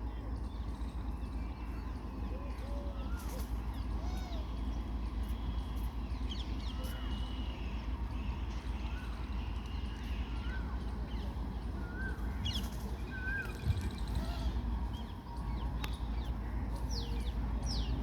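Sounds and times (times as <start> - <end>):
goods train rumbling past: 0.0 - 18.0
bird calls and chirps: 0.4 - 18.0.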